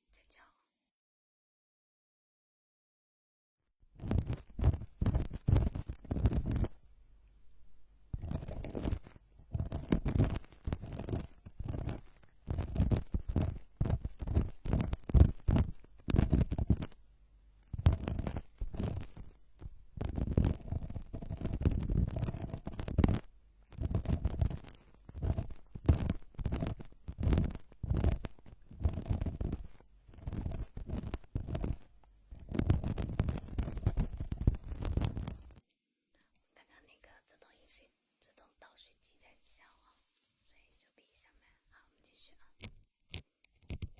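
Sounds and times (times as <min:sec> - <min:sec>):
scratching against microphone: 0:03.9 - 0:06.8, 0:08.1 - 0:17.0, 0:17.6 - 0:35.6, 0:42.2 - 0:43.9.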